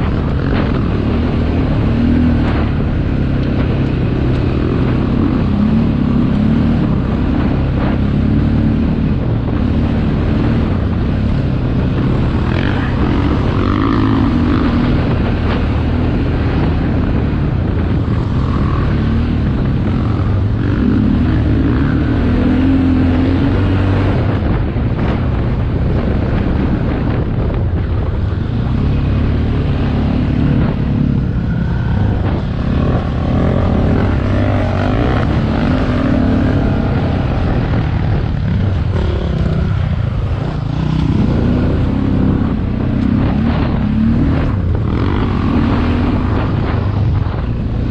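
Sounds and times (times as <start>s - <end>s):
motocross engine revving: 0.0s - 25.2s, 28.4s - 47.9s.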